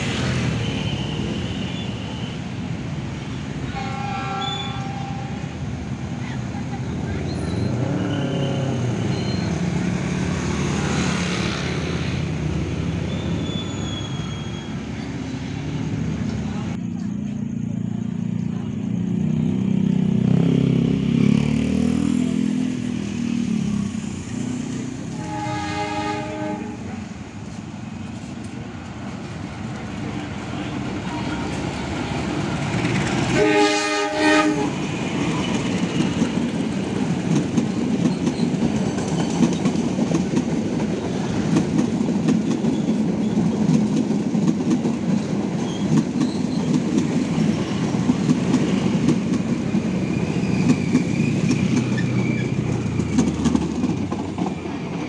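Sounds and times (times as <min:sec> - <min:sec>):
train horn blasts: 0:03.6 - 0:05.5, 0:25.1 - 0:27.0, 0:33.3 - 0:34.8
train wheels clacking over joints: 0:34.8 - 0:55.0.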